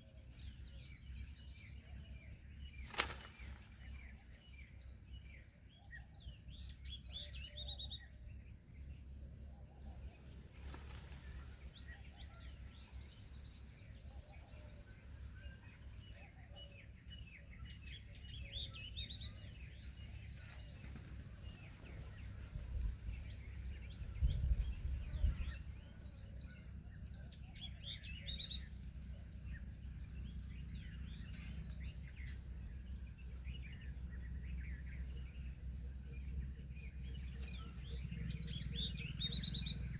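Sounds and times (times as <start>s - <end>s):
small birds chirping: 0.0s - 39.9s
steady low rumble: 17.4s - 39.9s.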